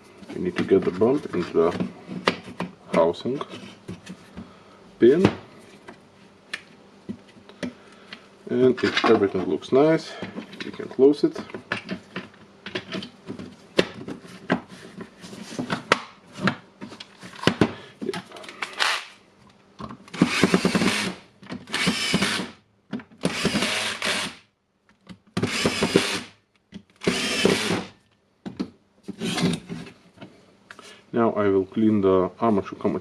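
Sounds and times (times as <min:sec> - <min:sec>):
cordless screwdriver running: 0:20.2 - 0:22.6, 0:23.3 - 0:24.4, 0:25.5 - 0:26.3, 0:27.0 - 0:27.9.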